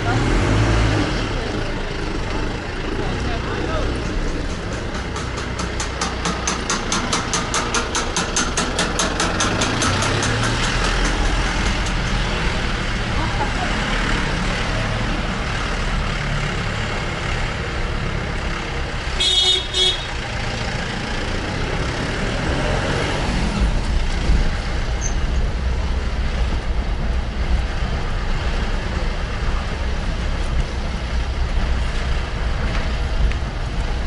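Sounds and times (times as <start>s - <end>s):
street traffic: 0.0s - 34.0s
vehicle horn tooting: 19.2s - 20.1s.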